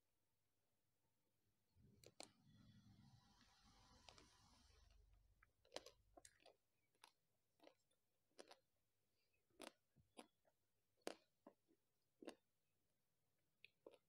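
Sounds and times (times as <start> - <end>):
person chewing with wet clicks: 5.4 - 12.6, 13.6 - 14.0.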